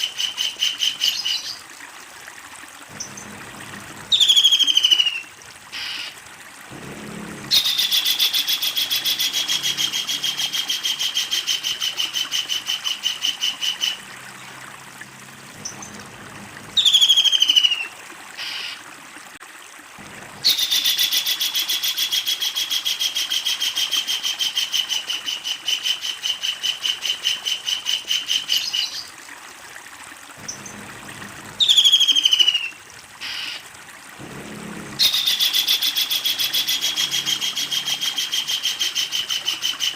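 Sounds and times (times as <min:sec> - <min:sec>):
sharp downward-slurred bird calls: 0:07.5 - 0:14.0, 0:31.6 - 0:33.6.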